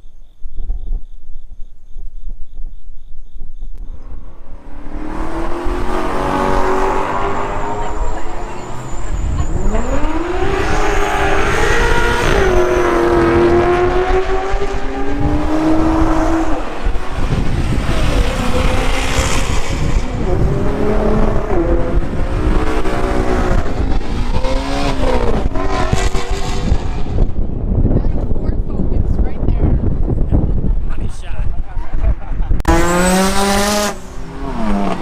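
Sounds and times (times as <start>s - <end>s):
car engines revving: 3.8s - 35.0s.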